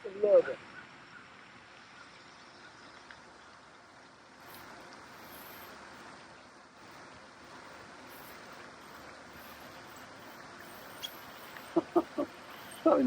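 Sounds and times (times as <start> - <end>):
faint rushing noise: 4.3 - 13.0.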